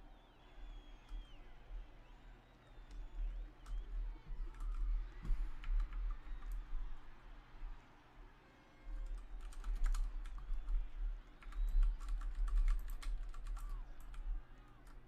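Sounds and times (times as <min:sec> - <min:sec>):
typing on computer keyboard: 0:04.4 - 0:04.9, 0:09.0 - 0:15.0.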